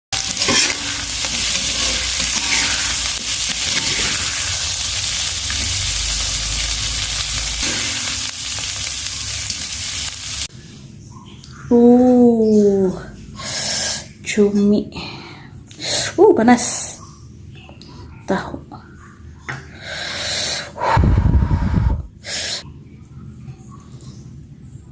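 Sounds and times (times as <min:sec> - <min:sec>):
food sizzling in hot oil: 0:00.1 - 0:10.5.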